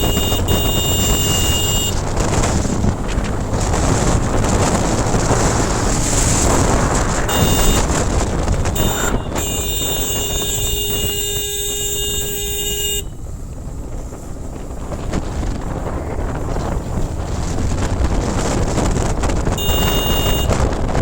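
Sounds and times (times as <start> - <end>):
vehicle horn blast: 0.0 - 2.5, 7.3 - 13.2, 19.6 - 20.7
wind on microphone: 0.0 - 12.9, 13.7 - 21.0
motorcycle road noise: 0.0 - 21.0.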